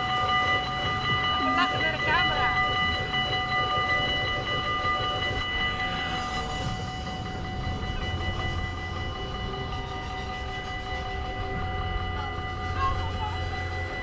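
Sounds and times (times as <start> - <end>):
crossing warning bells ringing: 0.0 - 14.0
train rumbling past: 0.0 - 14.0.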